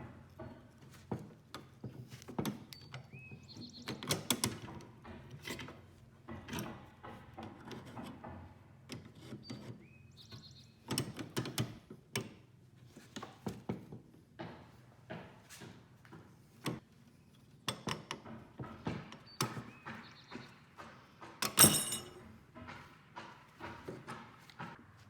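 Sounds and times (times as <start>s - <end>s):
handling clicks and knocks: 17.6s - 24.8s.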